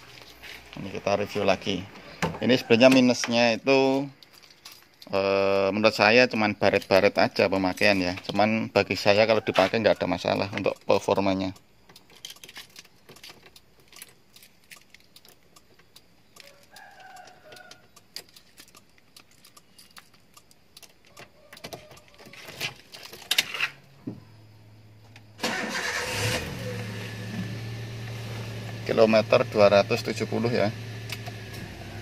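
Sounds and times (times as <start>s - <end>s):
keys jangling and clicking: 4.2s - 5.1s, 12.0s - 15.5s, 16.6s - 21.2s
car engine cranking and idling: 25.1s - 32.0s.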